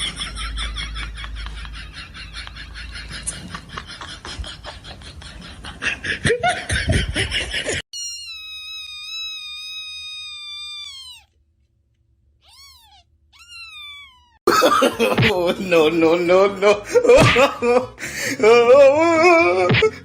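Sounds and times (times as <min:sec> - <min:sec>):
cat meowing: 0:08.0 - 0:11.4, 0:12.4 - 0:14.4.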